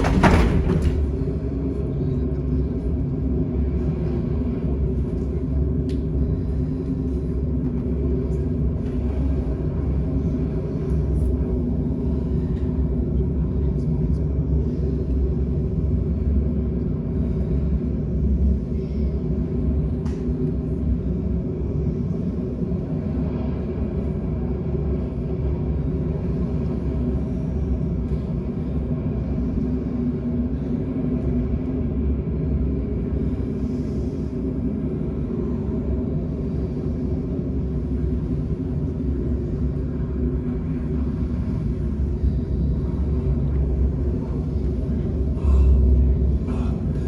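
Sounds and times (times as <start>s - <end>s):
loud low thump: 0.0s - 1.4s
steady low rumble: 0.0s - 47.0s.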